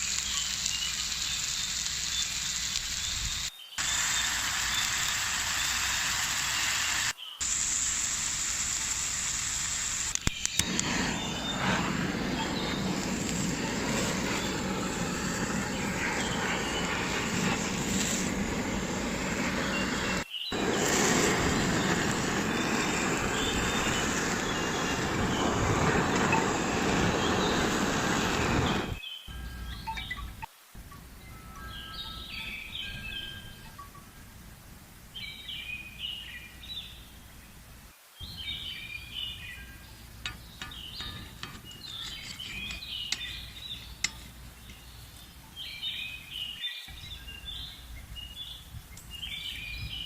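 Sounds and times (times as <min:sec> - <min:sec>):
steak sizzling in a frying pan: 0:00.0 - 0:28.2.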